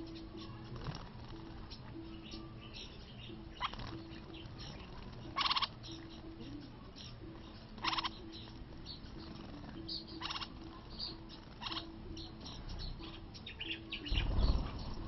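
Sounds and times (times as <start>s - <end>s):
small birds rasping calls: 0.0s - 15.0s
wings fluttering: 0.4s - 1.8s, 3.6s - 6.2s, 14.1s - 15.0s
high bird chirps: 1.6s - 15.0s.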